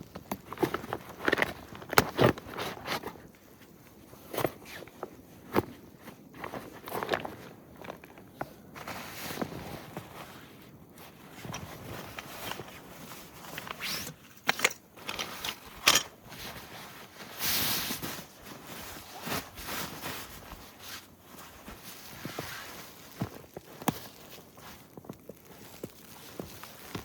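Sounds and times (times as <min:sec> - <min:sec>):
crunching in snow: 0:00.6 - 0:14.2, 0:16.3 - 0:27.0
rustle: 0:08.8 - 0:27.0.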